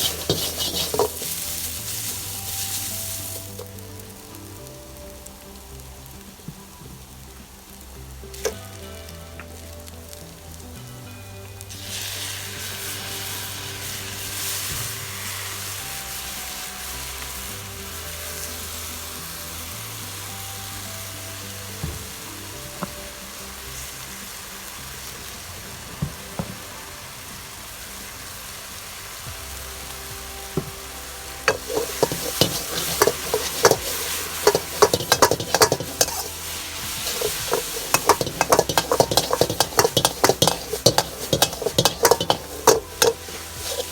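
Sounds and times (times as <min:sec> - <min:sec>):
metal utensil clacking on wok: 0:00.0 - 0:01.8, 0:31.5 - 0:43.9
food sizzling in hot oil: 0:00.0 - 0:43.9.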